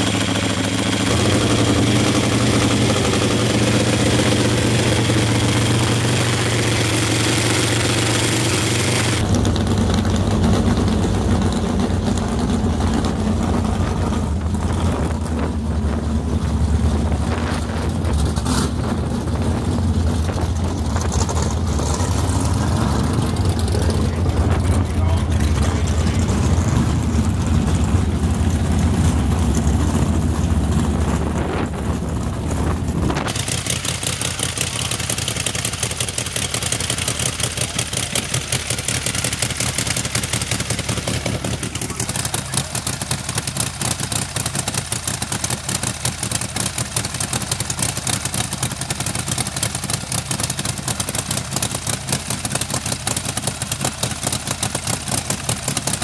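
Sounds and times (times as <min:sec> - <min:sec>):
drag-racing motorcycle engine: 0:00.0 - 0:56.0.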